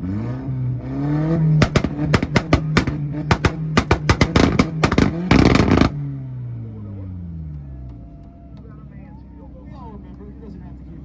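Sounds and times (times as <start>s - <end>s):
car engine revving on limiter: 0.0s - 6.6s
exhaust popping and banging: 1.4s - 6.1s.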